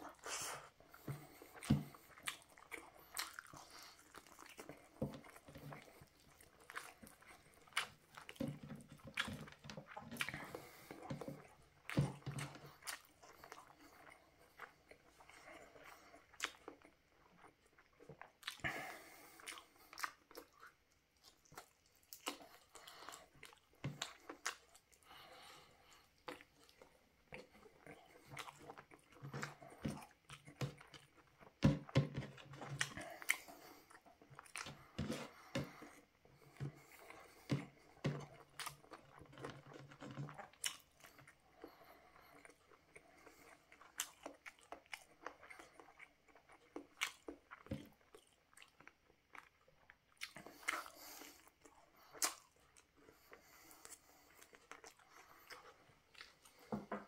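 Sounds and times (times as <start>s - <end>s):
person chewing: 0.0s - 56.9s
wet mouth sounds: 17.6s - 56.7s.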